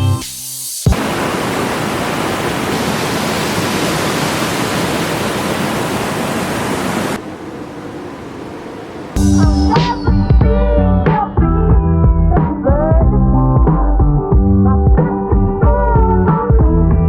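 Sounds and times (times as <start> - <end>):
rushing falling water: 0.9 - 9.2.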